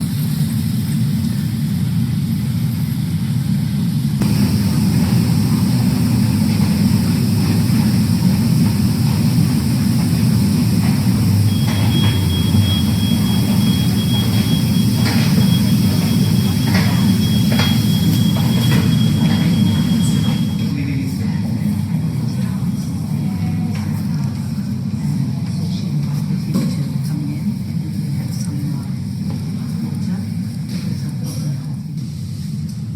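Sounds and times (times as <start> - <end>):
jet engines rumbling: 0.0 - 32.2
hiss: 2.4 - 20.6.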